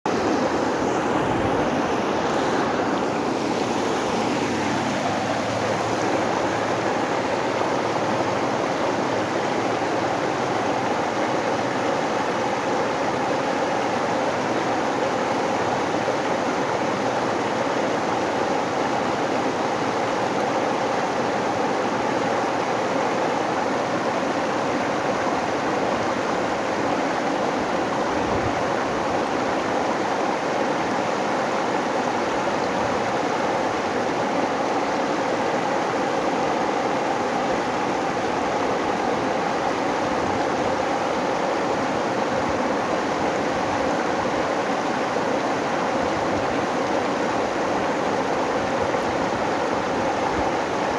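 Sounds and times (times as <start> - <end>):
river water rushing: 0.1 - 50.9.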